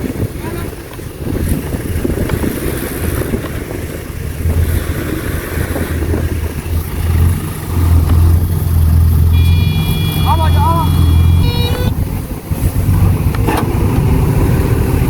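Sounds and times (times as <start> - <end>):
heavy diesel engine running: 3.9 - 15.0
steady high tone: 9.3 - 12.0.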